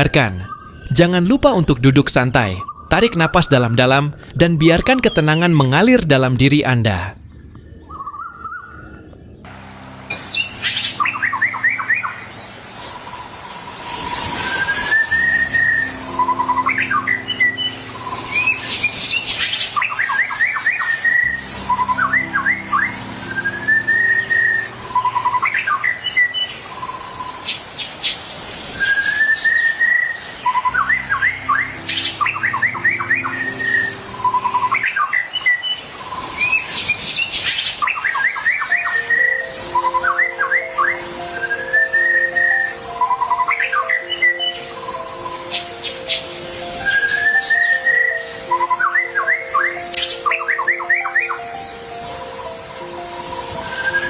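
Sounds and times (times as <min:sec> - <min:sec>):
songbird whistle and chirps: 0:00.0 - 0:03.8, 0:07.8 - 0:09.0, 0:10.1 - 0:27.6, 0:28.7 - 0:54.0
soft background music chords: 0:09.5 - 0:27.2, 0:30.4 - 0:36.2, 0:38.2 - 0:54.0.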